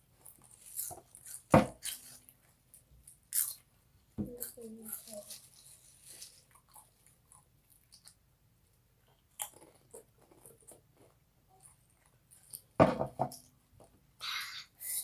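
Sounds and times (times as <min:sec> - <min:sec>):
chewing crunchy chips: 0:09.2 - 0:12.8.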